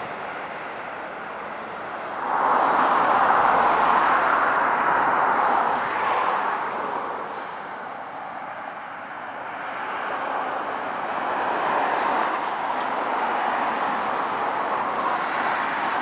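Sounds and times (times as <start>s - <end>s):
road vehicle tyre noise: 0.0s - 16.0s.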